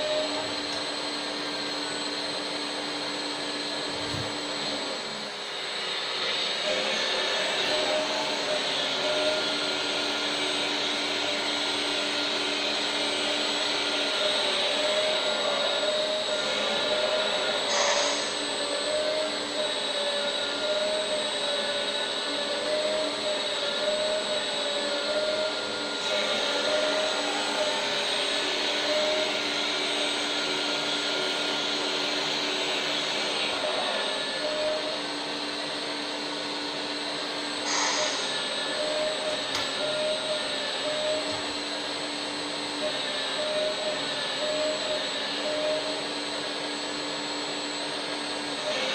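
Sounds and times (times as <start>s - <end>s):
hydraulic pump motor whine: 0.0s - 48.9s
hydraulic hiss: 17.5s - 18.5s, 37.6s - 38.5s.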